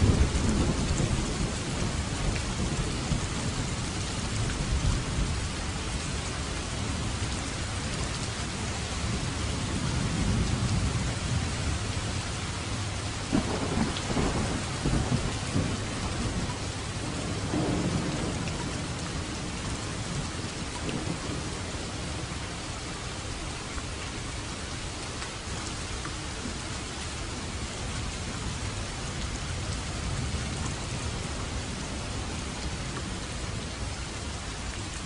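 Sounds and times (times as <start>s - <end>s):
rolling thunder: 0.0s - 5.4s, 13.3s - 22.3s
heavy rain hissing: 0.0s - 35.0s.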